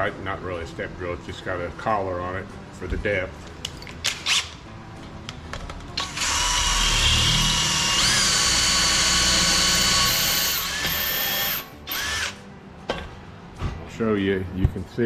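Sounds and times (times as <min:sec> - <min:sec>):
power drill whining: 0:06.0 - 0:12.4.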